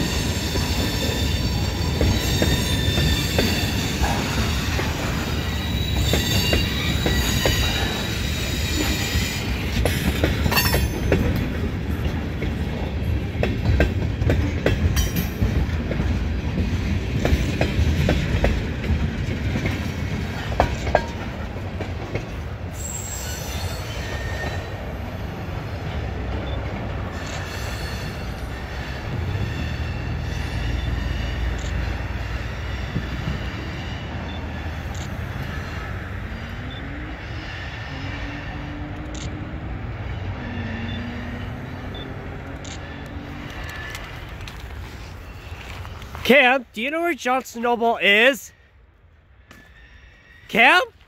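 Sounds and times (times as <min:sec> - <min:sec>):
high wheel squeal: 0:00.0 - 0:11.1, 0:22.7 - 0:25.3, 0:26.4 - 0:38.8, 0:40.0 - 0:42.2, 0:44.8 - 0:46.2, 0:49.5 - 0:50.9
train wheels clattering over rail joints: 0:00.0 - 0:25.0.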